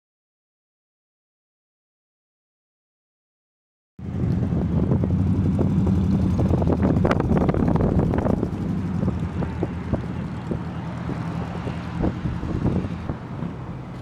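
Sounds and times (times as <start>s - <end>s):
engine running: 4.0s - 14.0s
wind buffeting microphone: 4.0s - 14.0s.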